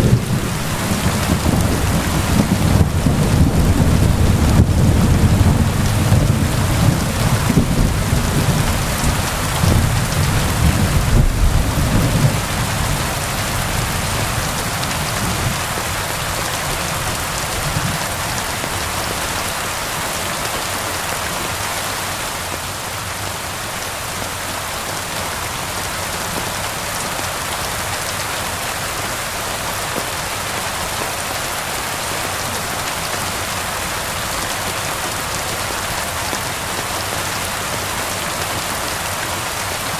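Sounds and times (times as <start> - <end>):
rolling thunder rumble: 0.0 - 15.8
steady rain hiss: 0.0 - 39.9.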